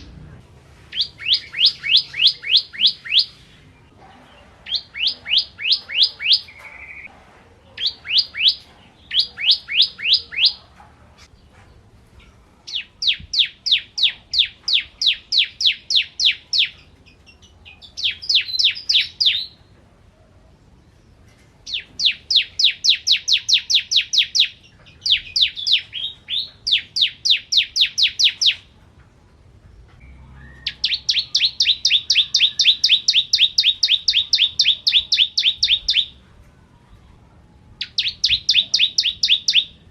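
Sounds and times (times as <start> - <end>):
bird singing rapid notes: 0.9 - 3.4, 4.6 - 7.1, 7.8 - 10.6, 12.7 - 19.6, 21.6 - 28.7, 30.0 - 36.2, 37.8 - 39.9.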